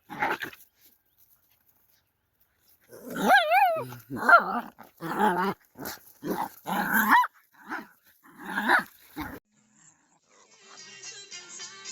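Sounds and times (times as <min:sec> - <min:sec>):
dog barking and growling: 0:00.0 - 0:00.6, 0:02.9 - 0:09.4
faint music: 0:09.5 - 0:11.9.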